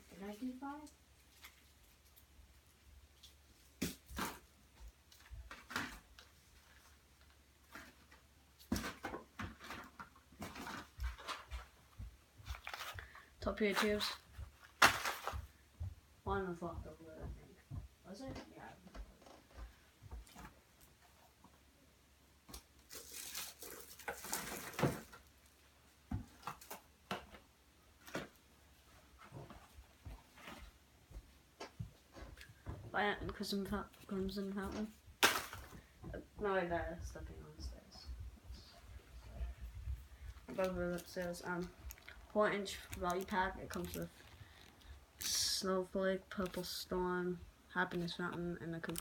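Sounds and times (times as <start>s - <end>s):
packages rustling: 5.1s - 15.6s, 22.8s - 25.6s, 40.0s - 45.6s, 47.8s - 49.0s
packaging taps and rustles: 40.4s - 45.5s, 48.7s - 49.0s.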